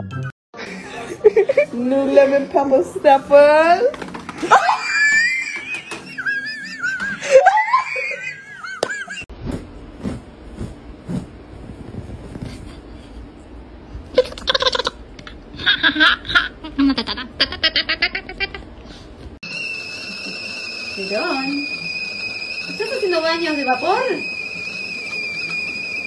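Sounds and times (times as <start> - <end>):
person laughing: 0.6 - 2.4, 4.4 - 9.2, 14.2 - 18.8.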